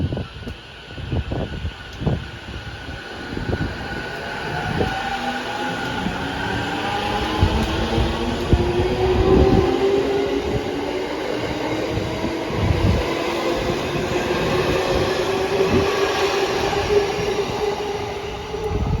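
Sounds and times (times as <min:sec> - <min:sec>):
train running noise: 0:00.0 - 0:19.0.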